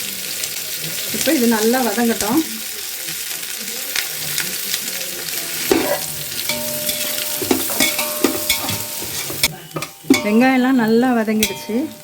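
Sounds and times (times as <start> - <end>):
onions sizzling in a pan: 0.0 - 12.0
spatula scraping a pan: 5.4 - 10.3.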